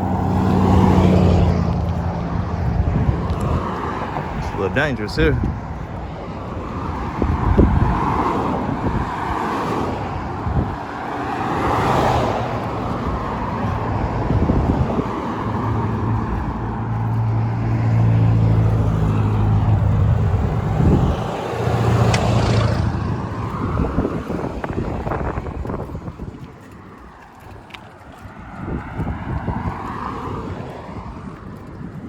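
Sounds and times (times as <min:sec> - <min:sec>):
cars passing: 0:00.0 - 0:32.0
low engine hum: 0:00.0 - 0:32.0.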